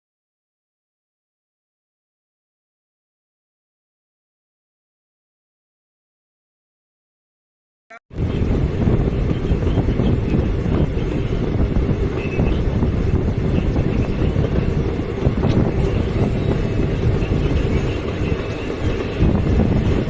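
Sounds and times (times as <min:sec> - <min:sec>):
train rumbling on rails: 0:08.1 - 0:20.0.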